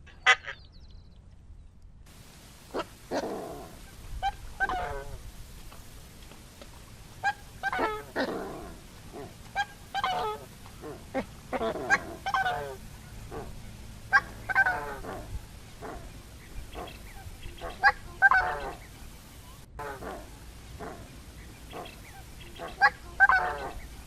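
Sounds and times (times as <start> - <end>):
swan honking calls: 2.7 - 5.3, 7.2 - 24.0.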